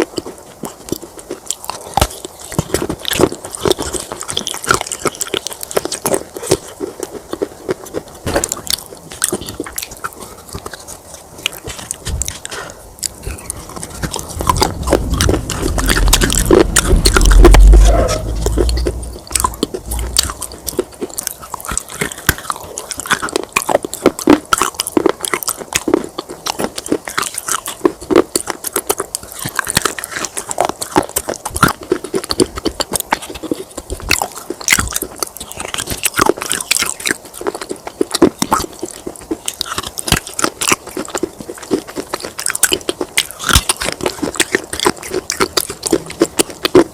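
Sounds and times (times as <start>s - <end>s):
crunching and chewing: 0.0s - 46.9s
deep low rumble: 13.2s - 20.8s.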